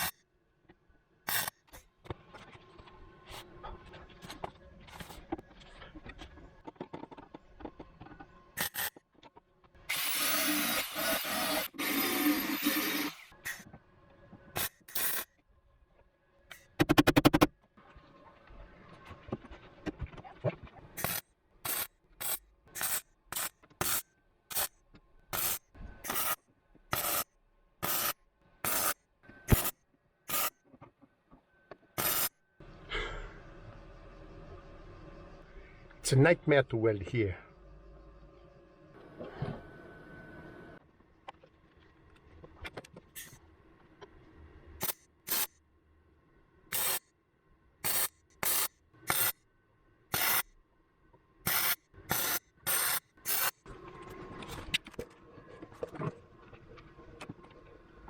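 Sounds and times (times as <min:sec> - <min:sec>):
electric welder bursts: 0:09.9 - 0:13.3, 0:25.4 - 0:27.2, 0:27.8 - 0:29.7, 0:32.0 - 0:32.3, 0:44.8 - 0:45.5, 0:46.7 - 0:47.0, 0:47.8 - 0:49.3, 0:50.1 - 0:50.4, 0:51.5 - 0:53.6
welder sputtering hiss: 0:50.1 - 0:50.4.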